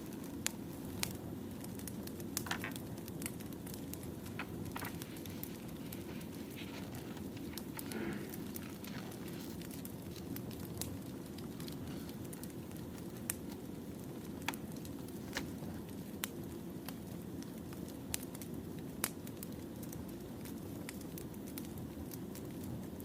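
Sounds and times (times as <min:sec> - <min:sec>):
wood crackling and popping: 0:00.0 - 0:23.0
rush of flames: 0:03.2 - 0:16.3.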